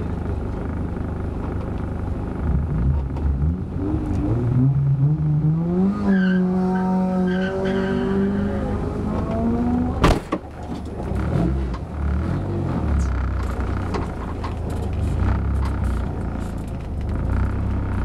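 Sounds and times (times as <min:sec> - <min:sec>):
car engine revving hard: 0:03.3 - 0:10.0.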